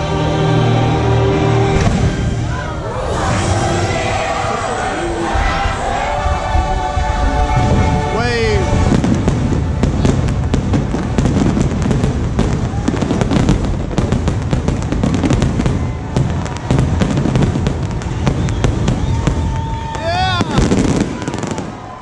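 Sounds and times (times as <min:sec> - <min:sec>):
fireworks booming and popping: 0:01.7 - 0:02.4, 0:07.2 - 0:22.0.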